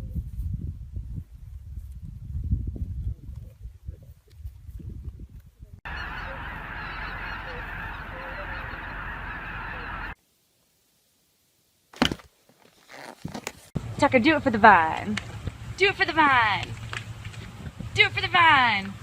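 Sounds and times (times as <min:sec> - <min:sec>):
geese honking in chorus: 0:05.9 - 0:10.2.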